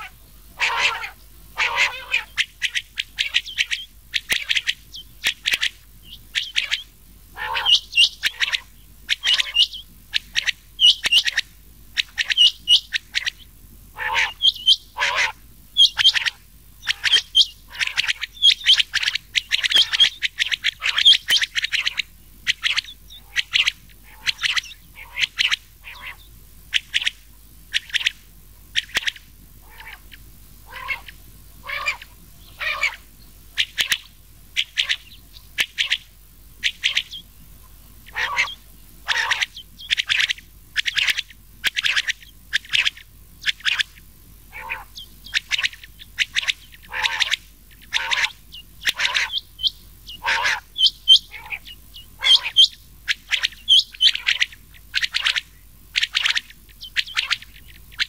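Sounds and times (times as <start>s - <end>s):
quails calling: 0.0s - 58.0s.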